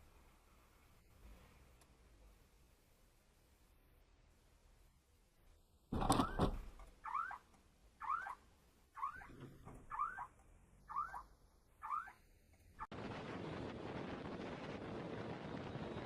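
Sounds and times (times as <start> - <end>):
squeak rising and falling: 6.0 - 12.2.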